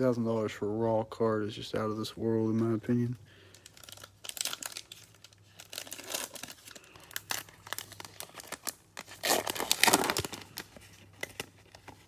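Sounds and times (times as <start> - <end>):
wrappers crinkling: 2.7 - 12.0.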